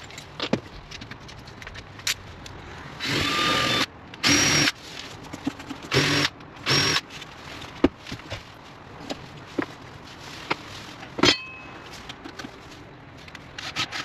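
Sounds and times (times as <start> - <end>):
power drill whining: 3.0 - 4.7, 5.9 - 7.0.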